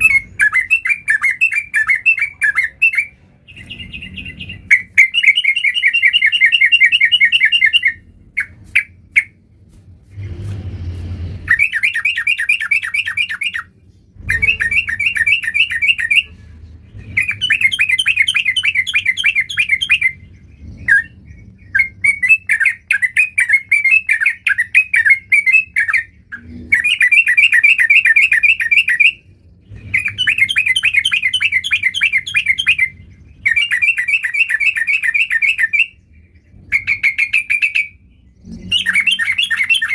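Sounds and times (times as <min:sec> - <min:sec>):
bird chattering song: 0:00.0 - 0:09.5, 0:11.4 - 0:39.9
low rustle: 0:09.5 - 0:11.5.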